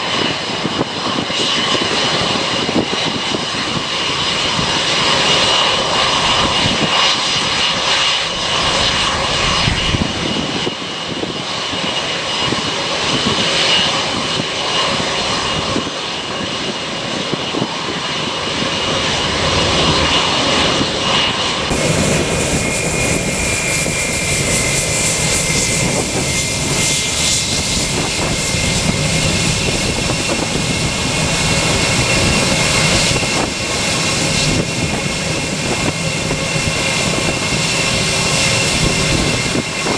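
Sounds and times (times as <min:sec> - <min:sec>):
airliner engines roaring: 0:00.0 - 0:39.9
high engine whine: 0:17.6 - 0:39.9.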